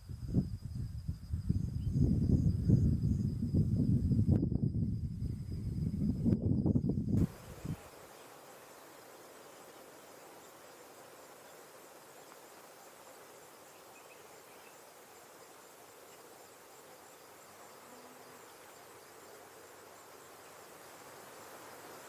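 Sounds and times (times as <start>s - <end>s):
insect chirring: 0.0s - 22.0s
soft outdoor hiss: 0.0s - 22.0s.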